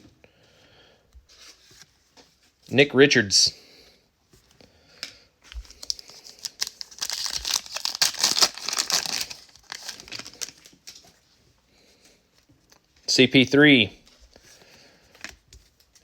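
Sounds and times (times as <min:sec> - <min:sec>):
wrapper tearing and crinkling: 0:05.6 - 0:11.1.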